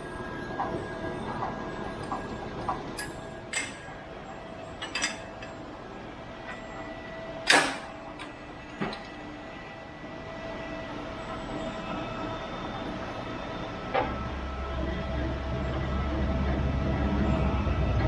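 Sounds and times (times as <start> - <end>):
steady background hum: 0.0 - 18.0
metallic clanks and knocks: 4.8 - 5.6.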